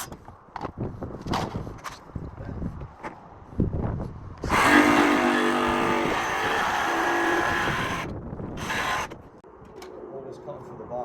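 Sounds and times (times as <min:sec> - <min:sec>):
electric power saw cutting: 0:04.4 - 0:09.2.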